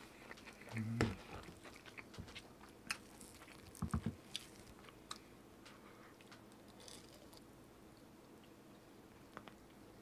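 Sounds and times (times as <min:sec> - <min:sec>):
person chewing crisp food: 0:00.0 - 0:05.3, 0:06.1 - 0:07.4.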